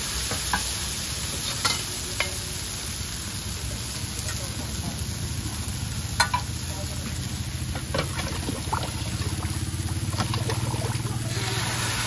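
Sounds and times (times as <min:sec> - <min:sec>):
noodles sizzling on iron pan: 0:00.0 - 0:12.0
low steady hum: 0:07.6 - 0:12.0.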